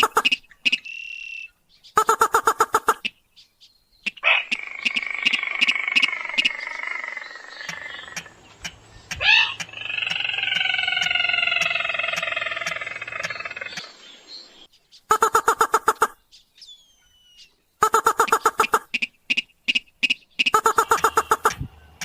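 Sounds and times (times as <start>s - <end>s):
crake calling: 0.0s - 3.2s, 4.0s - 14.3s, 15.0s - 16.2s, 16.9s - 22.0s
faint regular ticks: 7.6s - 13.9s.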